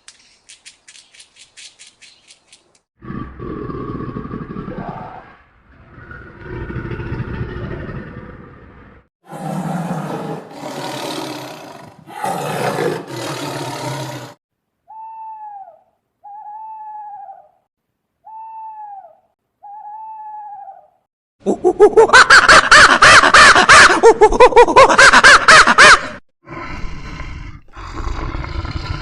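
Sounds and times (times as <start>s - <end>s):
rough roar-like animal calls: 3.0s - 14.4s.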